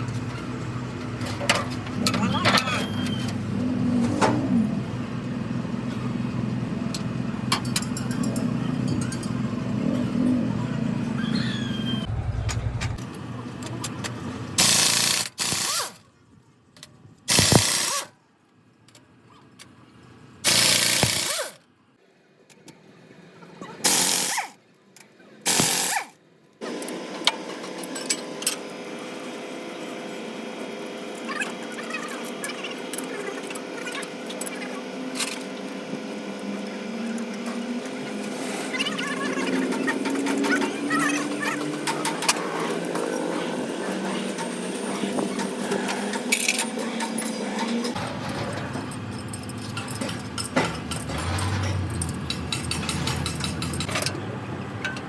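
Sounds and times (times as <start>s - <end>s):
motor humming: 30.1s - 48.1s.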